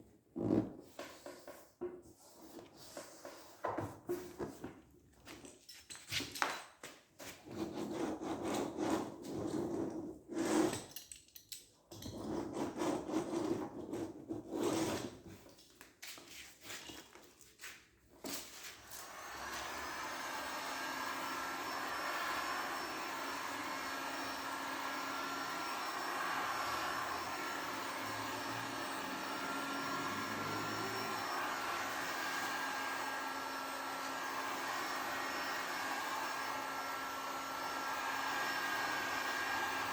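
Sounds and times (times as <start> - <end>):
electric blower motor whining: 18.8 - 39.9.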